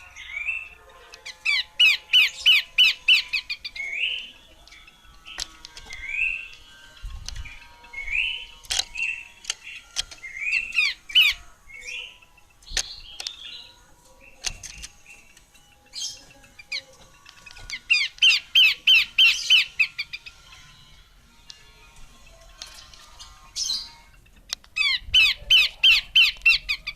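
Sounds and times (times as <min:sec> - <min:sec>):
bird chirping notes: 0:00.0 - 0:26.9
sharp repeated bird notes: 0:00.0 - 0:26.9
sharp clicks: 0:08.6 - 0:10.3.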